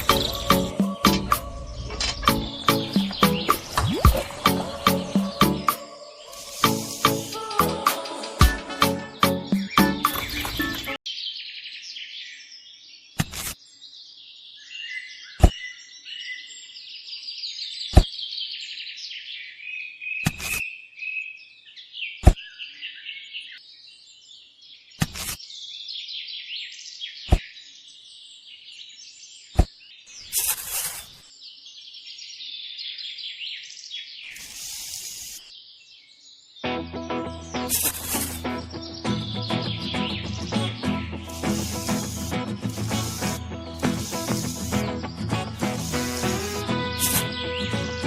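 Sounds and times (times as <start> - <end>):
birds chirping and singing: 0.0 - 48.0
short bursts of hiss: 6.3 - 7.5, 30.3 - 31.2, 34.3 - 35.5, 37.7 - 38.5, 41.3 - 47.4.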